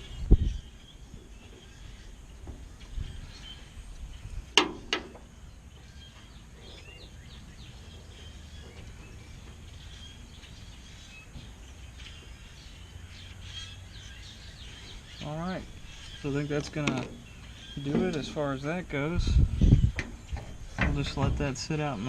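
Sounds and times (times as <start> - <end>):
bird chirps: 0.0 - 22.0
sharp knocks: 4.6 - 5.2.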